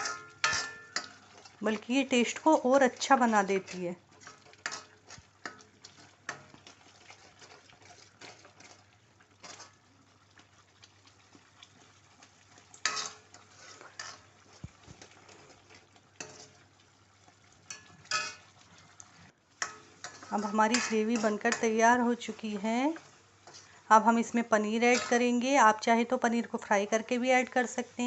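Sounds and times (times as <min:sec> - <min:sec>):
spoon scraping a pan: 0:00.0 - 0:09.9, 0:12.2 - 0:16.7, 0:17.6 - 0:18.6, 0:19.6 - 0:25.6
gravy sizzling: 0:00.0 - 0:28.0.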